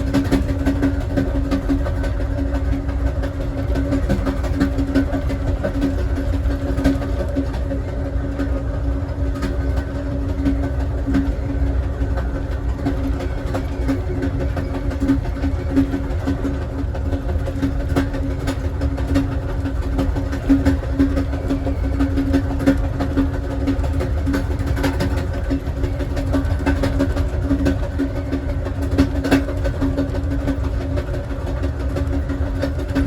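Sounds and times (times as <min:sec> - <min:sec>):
train car rumble: 0:00.0 - 0:33.0
wheels clicking on rails: 0:00.0 - 0:33.0.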